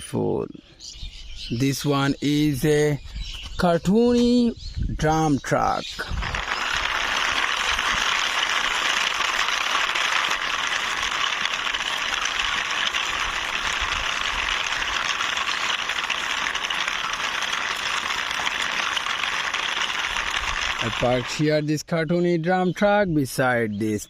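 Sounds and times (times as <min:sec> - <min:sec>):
toy truck wheels rattling: 0:06.1 - 0:21.4.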